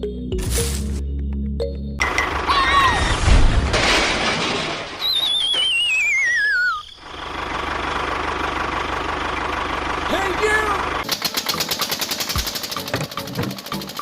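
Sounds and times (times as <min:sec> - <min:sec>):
falling warbling whistle: 0:05.0 - 0:07.2
small engine rattling drone: 0:07.0 - 0:14.0.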